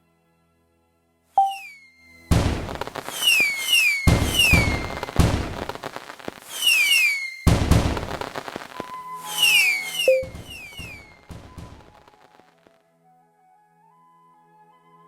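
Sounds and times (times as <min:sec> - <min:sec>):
falling whistle chirps: 0:01.4 - 0:02.0, 0:03.1 - 0:05.1, 0:06.5 - 0:07.5, 0:08.9 - 0:12.0
synthetic crackling bursts: 0:02.3 - 0:12.8.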